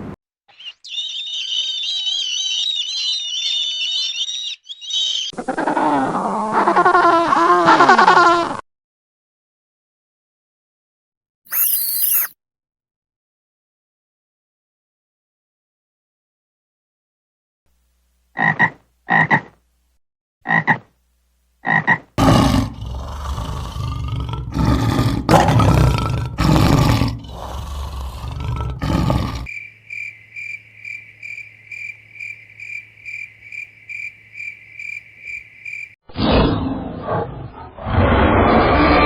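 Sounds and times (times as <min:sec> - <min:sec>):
high pulsed trilling call: 0:11.5 - 0:12.3
short pitched animal calls: 0:11.5 - 0:12.3
loud rough animal calls: 0:22.2 - 0:30.4.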